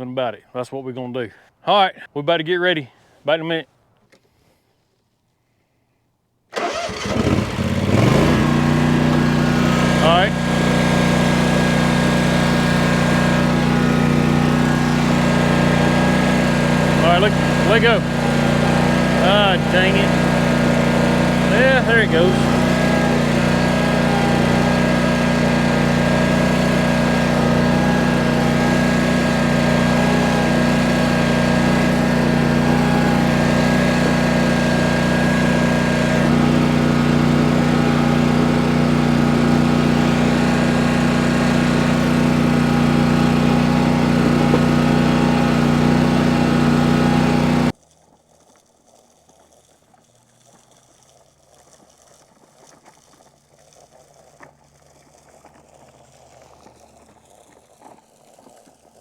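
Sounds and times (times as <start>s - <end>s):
small engine running: 6.5s - 47.8s.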